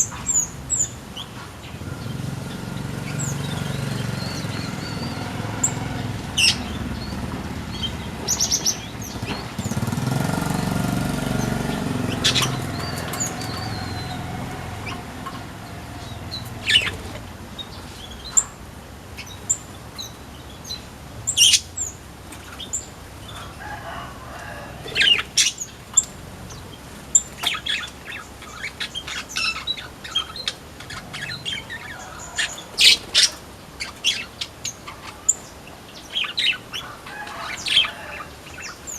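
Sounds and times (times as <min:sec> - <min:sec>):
small birds chirping: 0:00.0 - 0:38.9
wings fluttering: 0:03.0 - 0:17.6.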